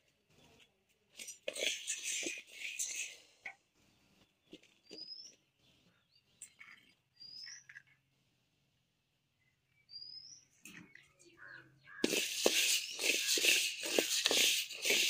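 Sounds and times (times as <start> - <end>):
bird whistling: 11.8 - 15.0.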